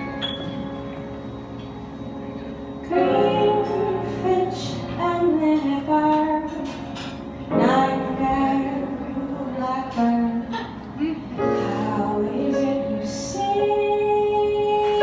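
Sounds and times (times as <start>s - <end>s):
held instrumental chords: 0.0s - 10.4s
woman singing jazz show tune: 2.9s - 6.7s, 7.5s - 15.0s.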